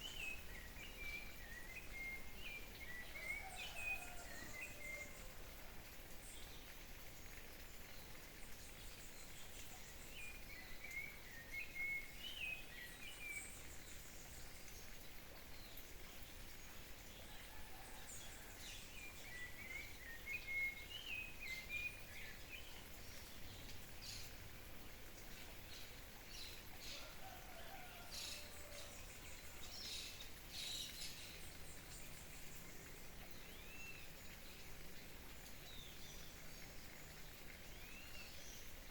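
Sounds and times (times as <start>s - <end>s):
birds singing: 0.0s - 5.3s
background hiss: 0.0s - 38.9s.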